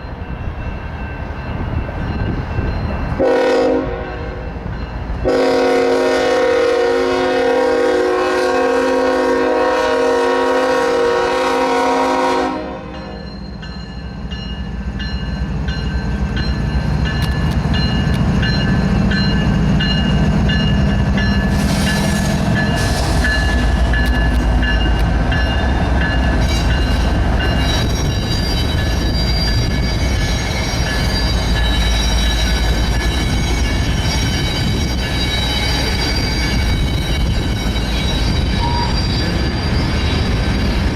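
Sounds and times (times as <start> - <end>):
rail cars rolling on rails: 0.0 - 40.9
train air horn chord: 3.2 - 4.5, 5.2 - 13.2.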